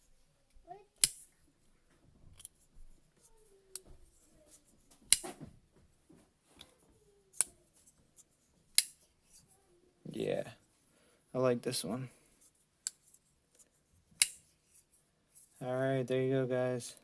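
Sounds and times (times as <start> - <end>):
folding knife blade clicking: 1.0 - 1.3, 14.2 - 14.4.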